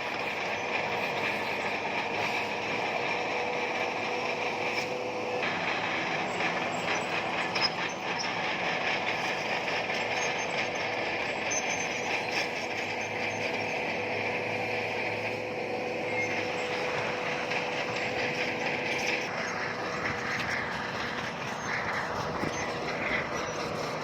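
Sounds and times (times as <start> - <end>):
bulldozer diesel engine: 0.0 - 24.0
steel tracks clanking: 0.0 - 24.0
high squeal: 6.2 - 15.1, 15.9 - 24.0.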